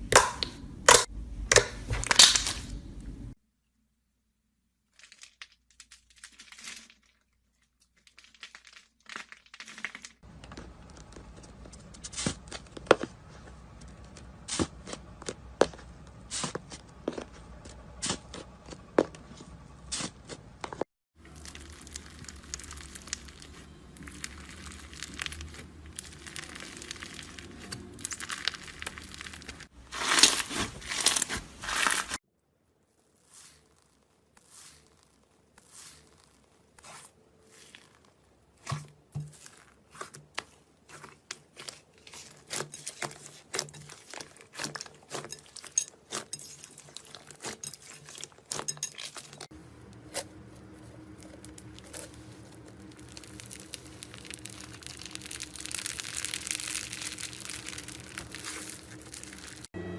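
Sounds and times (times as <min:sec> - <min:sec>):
slime squished by hand: 0:50.1 - 0:59.7.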